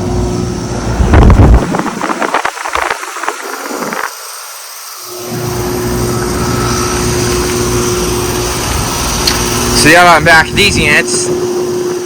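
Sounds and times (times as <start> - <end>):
air conditioner unit humming: 0.0 - 2.2, 4.8 - 12.0.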